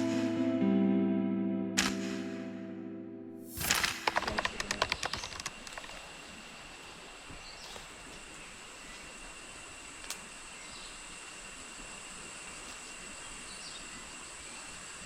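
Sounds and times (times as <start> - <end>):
even hiss: 3.4 - 15.0
sharp clicks: 3.5 - 6.0
insects trilling: 3.5 - 15.0.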